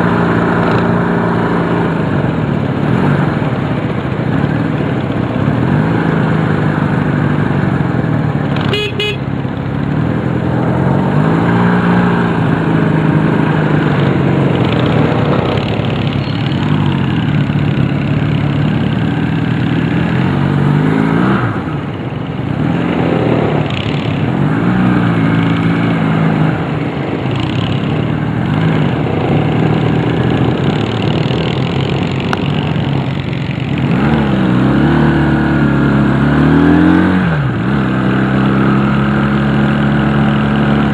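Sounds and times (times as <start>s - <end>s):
motorcycle engine revving: 0.0s - 40.9s
short high tone: 8.7s - 9.2s
steady rushing noise: 9.4s - 36.6s.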